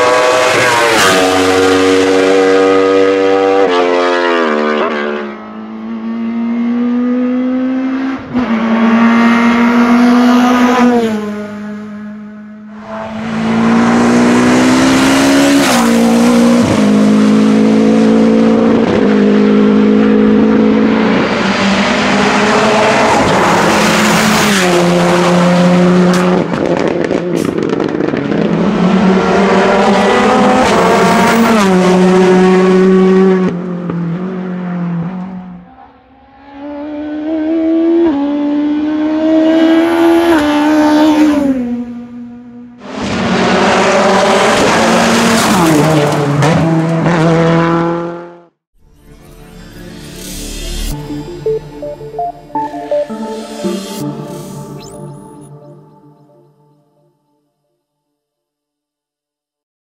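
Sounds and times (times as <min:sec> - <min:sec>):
race car engines at full throttle: 0:00.0 - 0:48.6.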